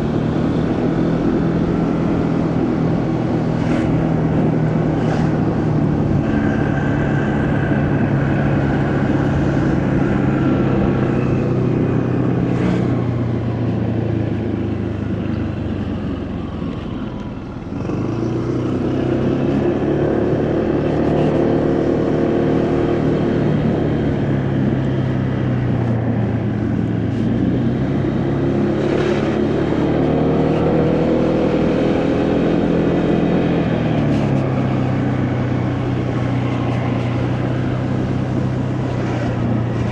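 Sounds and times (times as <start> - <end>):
motorcycle engine revving: 0.0 - 16.6, 17.6 - 39.9
wind and road noise: 0.0 - 39.9.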